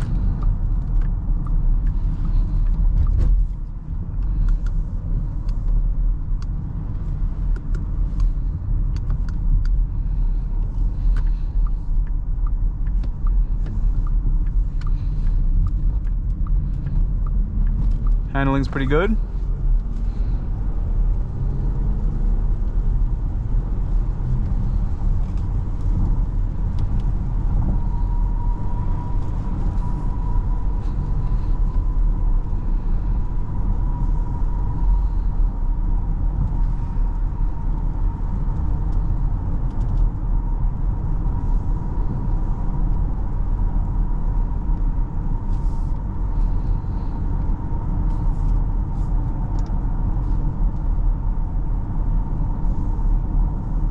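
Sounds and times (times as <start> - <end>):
tyre and engine rumble: 0.0 - 53.9.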